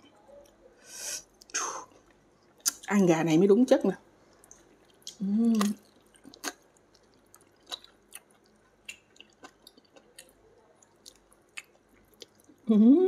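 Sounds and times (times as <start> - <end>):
person chewing and sucking: 4.3 - 12.6.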